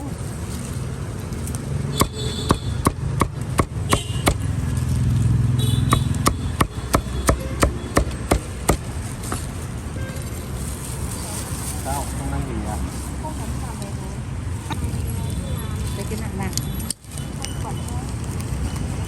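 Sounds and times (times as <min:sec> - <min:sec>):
vehicle passing: 0:00.0 - 0:09.9
low traffic rumble: 0:00.0 - 0:19.0
cleaver chopping poultry: 0:02.0 - 0:04.6, 0:05.8 - 0:08.9.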